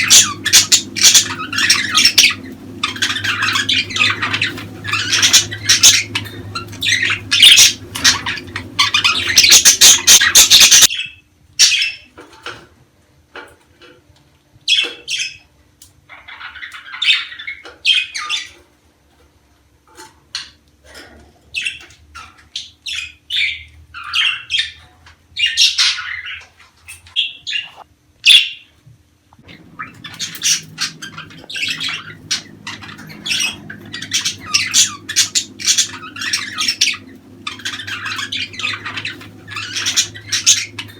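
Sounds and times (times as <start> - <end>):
budgerigars chattering: 0.0 - 12.1, 21.6 - 28.6, 29.5 - 40.9.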